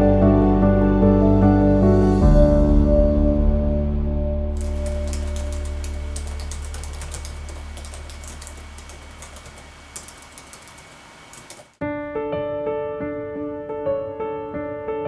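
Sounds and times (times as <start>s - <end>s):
typing on a keyboard: 4.6s - 11.8s.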